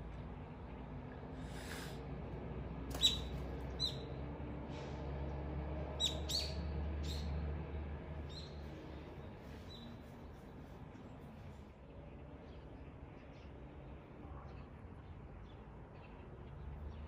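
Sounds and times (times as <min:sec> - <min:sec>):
birds giving sharp falling calls: 0:02.9 - 0:04.0.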